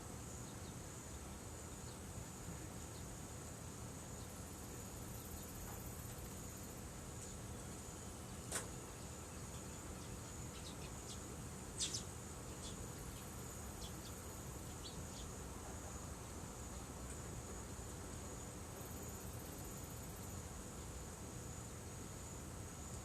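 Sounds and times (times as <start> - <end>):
insect chirring: 4.0 - 15.5, 18.3 - 20.9.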